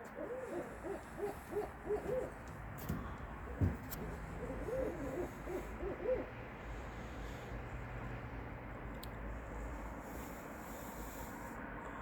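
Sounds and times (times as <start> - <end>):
animal hooting calls: 0.0 - 2.4, 3.5 - 6.3.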